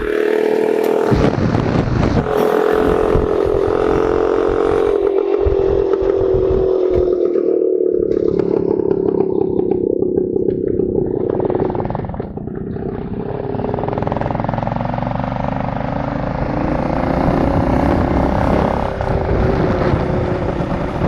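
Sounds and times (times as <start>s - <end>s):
rough rattling noise: 0.0s - 14.4s
motorcycle engine running: 0.0s - 21.0s.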